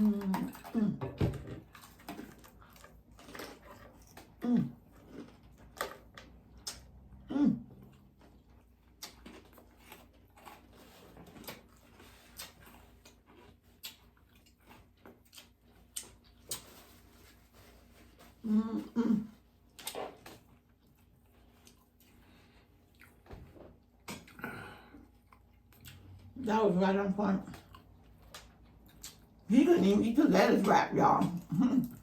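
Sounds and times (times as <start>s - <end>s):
chewing and crunching food: 0.0s - 32.0s.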